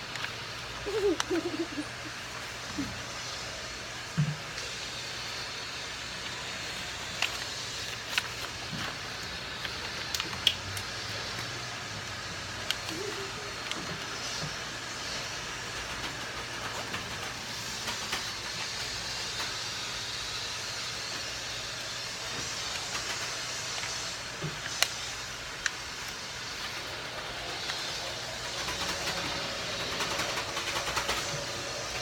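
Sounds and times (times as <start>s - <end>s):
steady hiss: 0.0s - 32.0s
paper rustling and crinkling: 6.2s - 10.6s.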